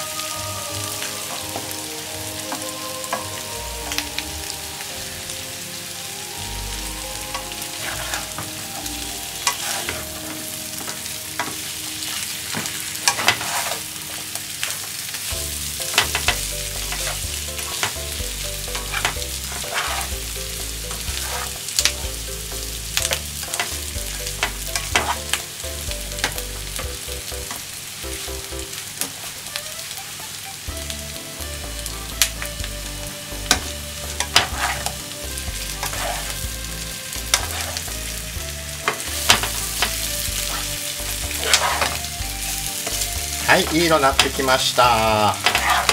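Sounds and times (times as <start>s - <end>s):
potatoes sizzling in oil: 0.0s - 45.9s
spatula scraping pan: 7.2s - 14.2s, 15.9s - 22.2s, 23.1s - 25.4s, 33.5s - 36.6s, 37.2s - 38.0s, 38.9s - 44.5s, 45.2s - 45.9s.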